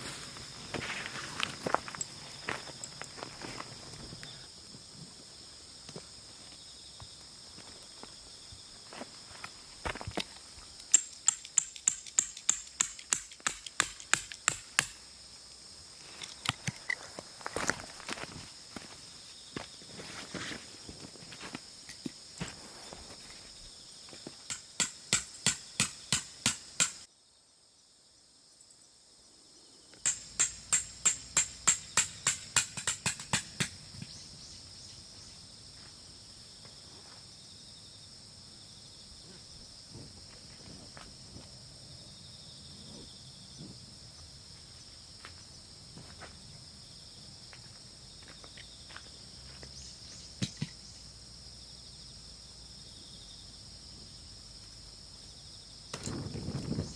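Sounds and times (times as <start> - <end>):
insects chirping: 0.0 - 56.9
hammer striking tent stakes: 10.9 - 15.0, 24.5 - 27.1, 30.0 - 33.8.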